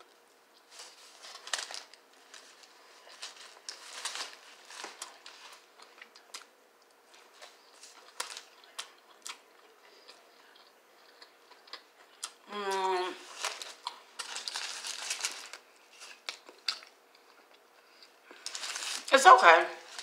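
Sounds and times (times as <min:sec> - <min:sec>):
person chewing with crunches: 0:00.0 - 0:19.1
paper wrapper crinkling: 0:00.7 - 0:06.5, 0:07.1 - 0:08.9, 0:13.2 - 0:16.9, 0:18.4 - 0:20.0.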